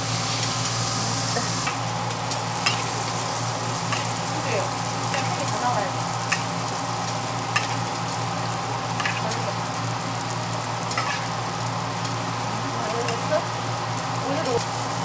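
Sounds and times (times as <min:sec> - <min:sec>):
pancakes sizzling in oil: 0:00.0 - 0:15.0
metal tongs clicking on pan: 0:02.6 - 0:02.9, 0:05.1 - 0:05.5, 0:06.3 - 0:06.5, 0:07.5 - 0:07.8.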